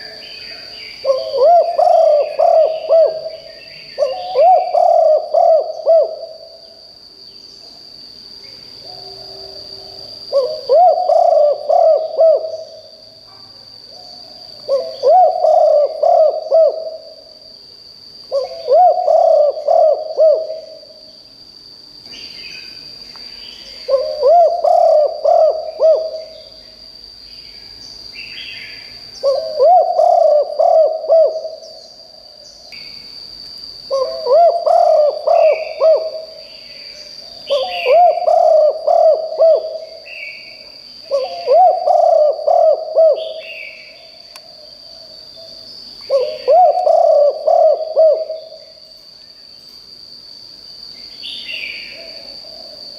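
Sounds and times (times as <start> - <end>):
dove cooing: 1.0 - 6.6, 8.8 - 12.8, 14.6 - 17.2, 18.3 - 21.0, 23.8 - 26.6, 29.2 - 31.7, 33.9 - 36.4, 37.4 - 45.5, 46.1 - 48.7
faint bird chirps: 33.9 - 49.7.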